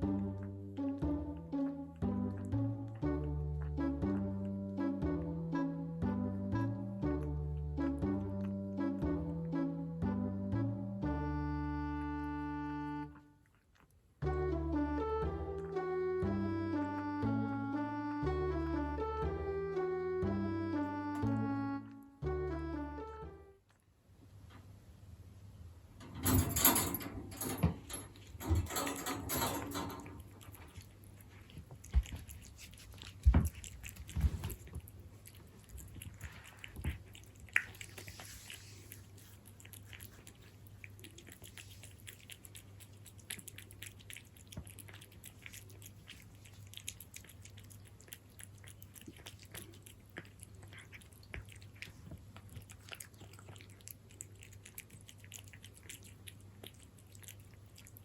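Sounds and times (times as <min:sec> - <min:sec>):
cat chewing wet food: 0:00.0 - 0:05.4, 0:13.2 - 0:14.2, 0:28.0 - 0:28.4, 0:29.8 - 0:58.0.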